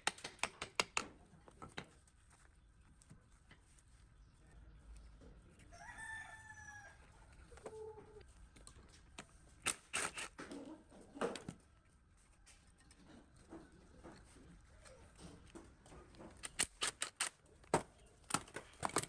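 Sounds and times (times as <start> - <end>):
sharp clicks and knocks: 0.0 - 2.0, 8.6 - 10.6, 15.2 - 19.0
rooster crowing: 5.7 - 8.1.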